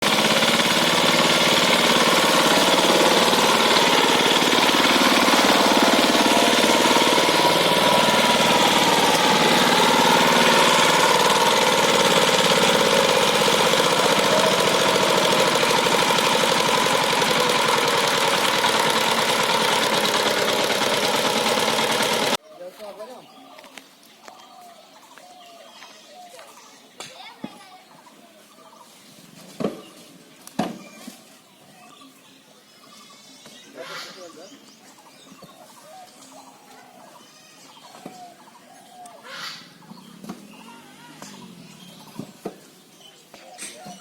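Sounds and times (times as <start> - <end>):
diesel engine knocking: 0.0 - 22.4.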